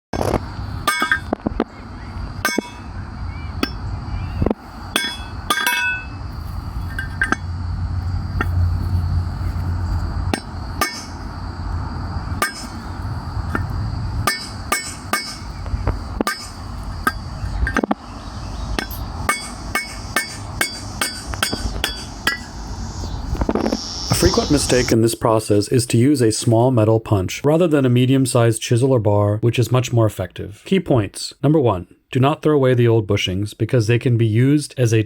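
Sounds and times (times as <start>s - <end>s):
hammer striking chisel on metal: 0.9s - 1.3s, 2.4s - 2.8s, 5.0s - 6.1s, 10.4s - 11.2s, 12.4s - 12.7s, 14.2s - 15.5s, 16.2s - 17.9s, 18.8s - 22.4s.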